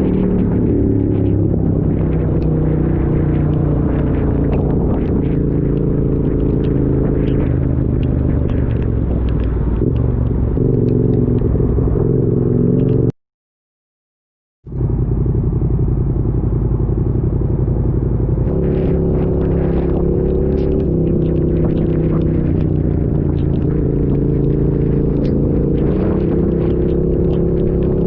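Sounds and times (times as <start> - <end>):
vehicle engine drone: 0.0 - 13.1, 14.7 - 28.0
raindrops ticking: 3.1 - 11.5, 18.8 - 28.0.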